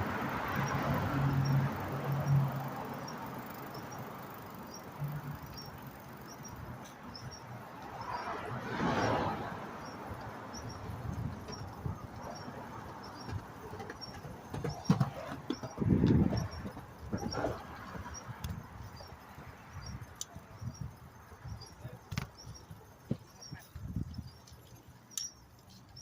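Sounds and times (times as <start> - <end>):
vehicle passing: 0.0 - 6.4, 7.4 - 20.0
outdoor road noise: 0.0 - 26.0
faint high ticks: 18.3 - 18.6, 20.1 - 20.4, 24.4 - 26.0.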